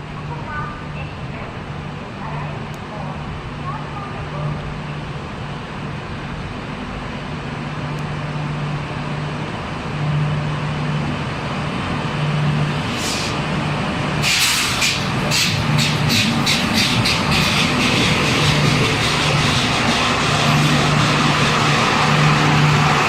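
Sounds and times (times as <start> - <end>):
electric train humming: 0.0 - 23.0
short hiss: 12.8 - 13.4, 14.2 - 15.5.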